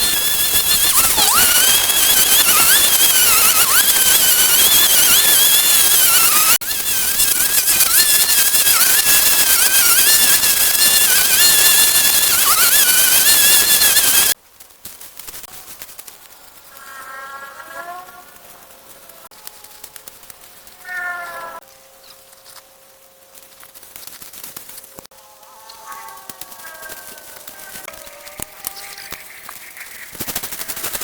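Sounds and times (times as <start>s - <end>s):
power tool motor whine: 0.0s - 14.4s.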